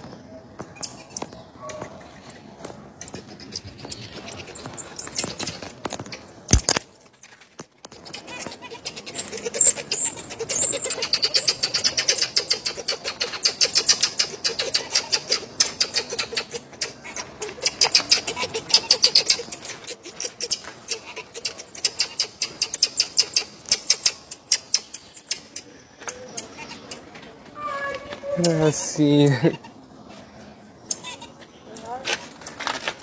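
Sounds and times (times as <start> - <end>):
marmosets chirping and twittering: 0.0 - 6.3, 7.4 - 27.0.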